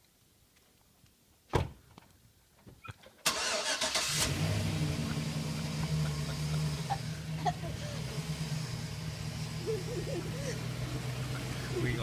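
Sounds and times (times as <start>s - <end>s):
door shutting thump: 1.5s - 1.8s
truck engine starting and idling: 3.2s - 12.0s.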